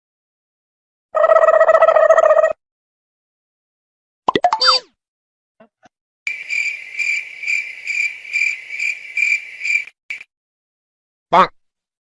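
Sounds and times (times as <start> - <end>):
crickets chirping: 6.3 - 10.3.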